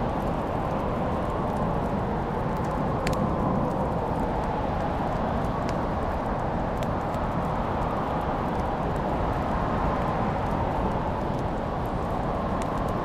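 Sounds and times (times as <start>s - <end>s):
wood fire crackling: 0.0s - 13.0s
sharp pops from the fire: 2.4s - 3.8s.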